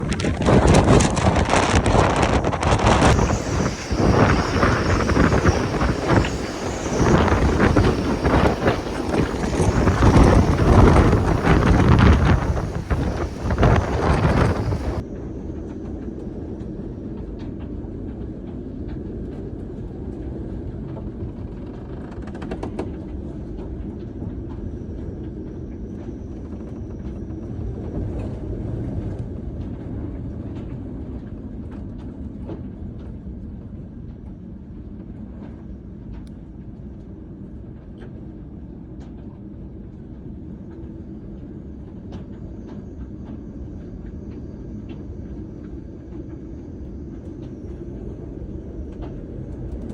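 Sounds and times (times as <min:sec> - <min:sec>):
wind buffeting microphone: 0:00.0 - 0:15.0, 0:44.7 - 0:49.9
low rumble of storm sea: 0:00.0 - 0:49.9.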